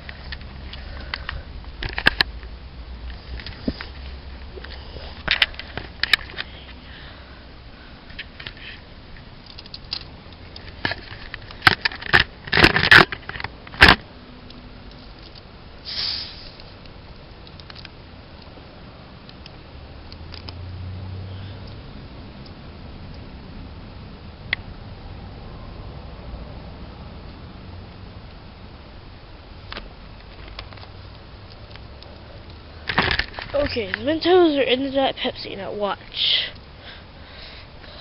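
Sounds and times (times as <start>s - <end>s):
handling clicks and knocks: 9.4s - 14.1s, 29.7s - 34.2s
brief hiss: 15.8s - 16.7s.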